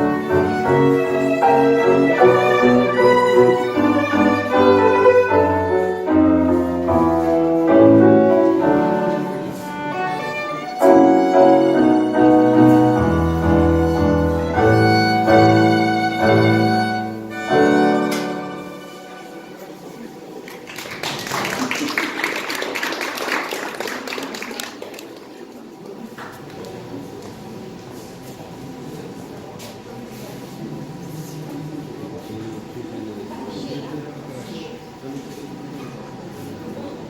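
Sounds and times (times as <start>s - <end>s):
tango violin: 0.0s - 19.6s
piano accompaniment: 0.0s - 19.8s.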